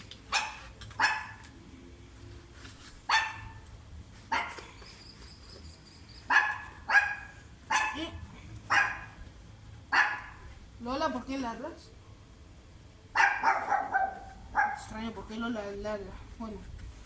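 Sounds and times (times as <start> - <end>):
dog barking: 0.3 - 1.4, 3.1 - 3.6, 4.3 - 4.6, 6.3 - 9.2, 9.9 - 10.4, 13.2 - 14.9.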